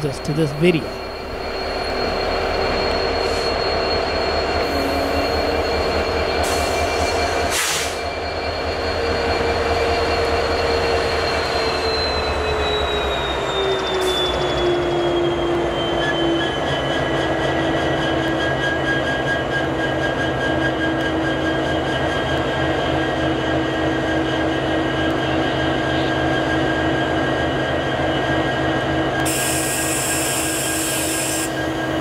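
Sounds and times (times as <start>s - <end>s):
train cars rumbling: 0.0s - 20.6s
train wheels squealing: 0.0s - 32.0s
hiss: 6.5s - 8.0s.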